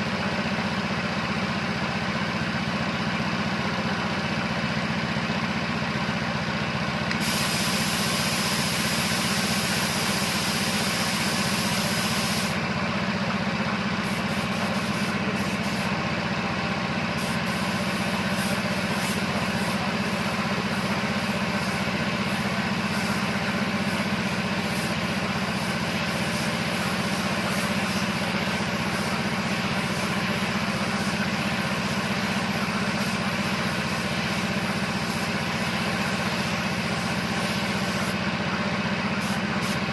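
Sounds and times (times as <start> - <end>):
air compressor running: 0.0 - 39.9
paint spray gun hissing: 7.1 - 12.8, 13.8 - 16.0, 17.0 - 39.9.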